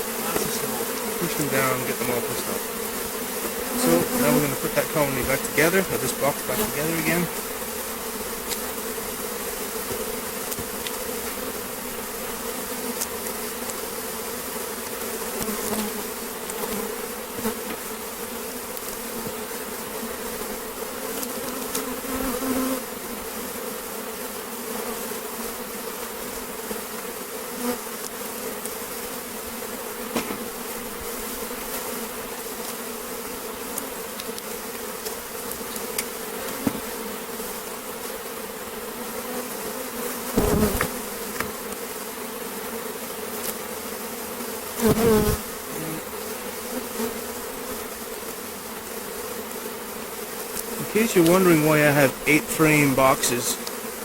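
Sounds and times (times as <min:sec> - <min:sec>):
honeybees buzzing: 0:00.0 - 0:54.0
hive boxes clicking and knocking: 0:00.1 - 0:02.6, 0:09.7 - 0:11.2, 0:14.8 - 0:17.9, 0:30.1 - 0:31.1, 0:33.6 - 0:37.0, 0:40.3 - 0:41.9, 0:50.4 - 0:53.9.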